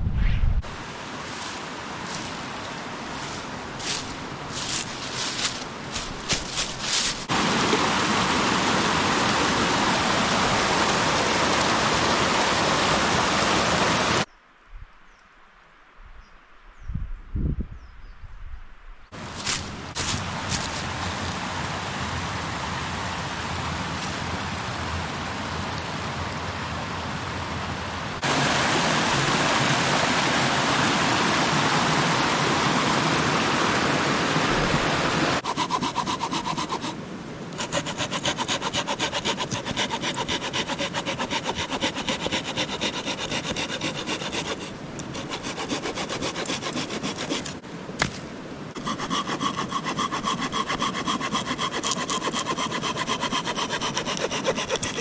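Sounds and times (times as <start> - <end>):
even rushing noise: 0.0 - 1.2
hand saw rasping through wood: 3.8 - 7.3, 35.4 - 37.0, 37.6 - 47.6, 48.8 - 55.0.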